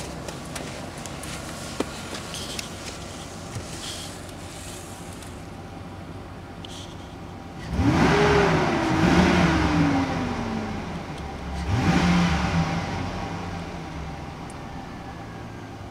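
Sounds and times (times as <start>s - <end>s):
truck engine idling and revving: 0.0s - 15.9s.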